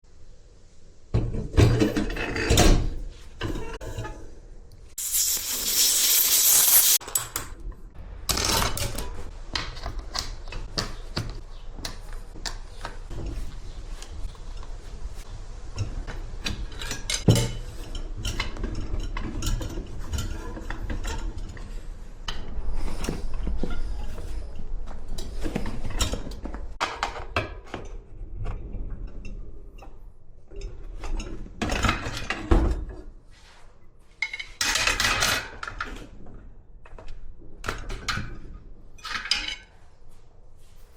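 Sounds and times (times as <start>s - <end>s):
loud air hiss: 5.0s - 7.0s.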